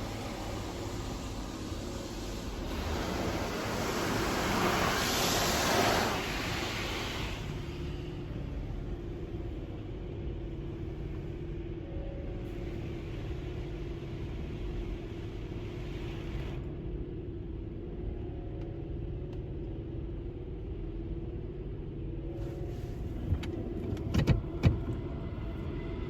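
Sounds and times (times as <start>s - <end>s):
water spray hissing on car: 0.0s - 7.7s
car wash low rumble: 0.0s - 26.0s.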